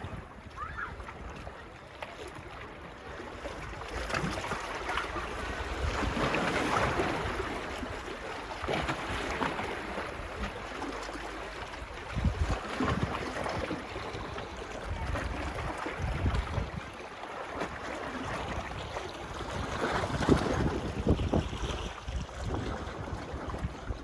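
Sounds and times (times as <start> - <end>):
wind rumbling on microphone: 5.2 - 8.0, 11.9 - 17.0, 17.6 - 24.0.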